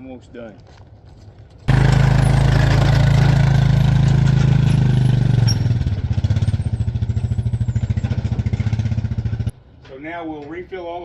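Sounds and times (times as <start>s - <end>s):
small engine running: 1.7s - 9.5s.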